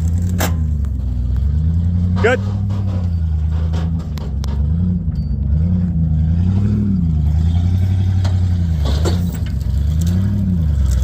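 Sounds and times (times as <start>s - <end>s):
truck engine revving under load: 0.0s - 11.0s.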